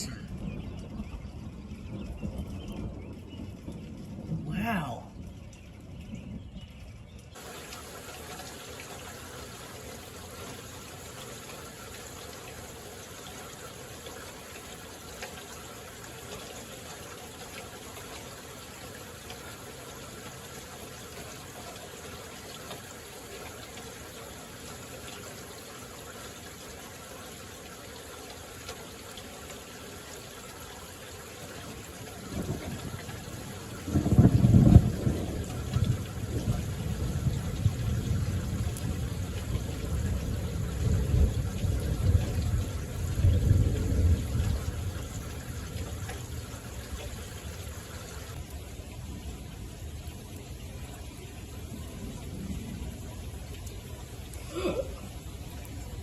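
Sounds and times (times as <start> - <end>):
thunder rumbling: 0.0 - 12.8, 31.7 - 50.0, 51.6 - 56.0
heavy rain falling: 0.0 - 56.0.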